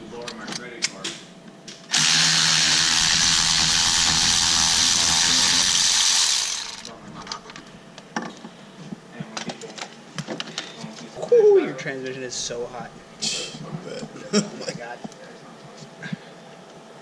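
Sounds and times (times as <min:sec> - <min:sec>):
power tool driving a bolt: 0:01.9 - 0:06.9.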